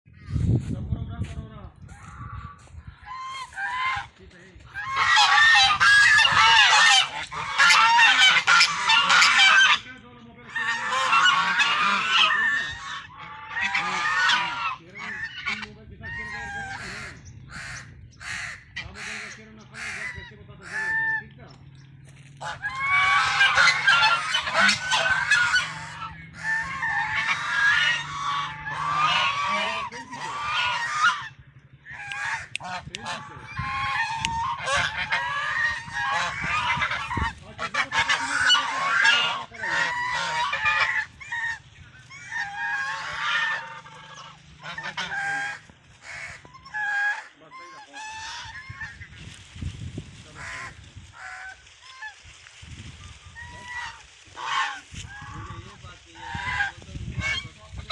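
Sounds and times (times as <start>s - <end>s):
steady low hum: 1.5s - 47.4s
flock of birds calling: 1.8s - 57.9s.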